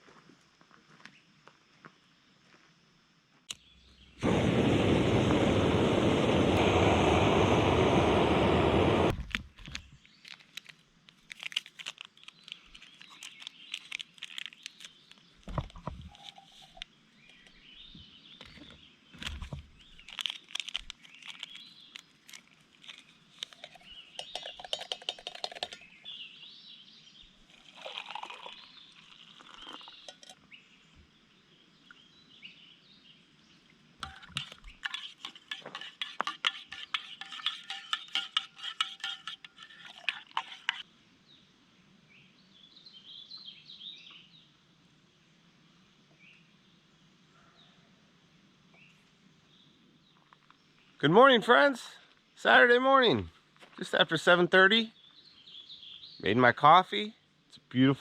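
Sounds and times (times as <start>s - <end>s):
loud rush of noise: 4.2s - 9.2s
light clicks and crackles: 9.2s - 17.5s, 18.4s - 24.4s
small birds chirping: 11.9s - 44.6s, 53.8s - 58.0s.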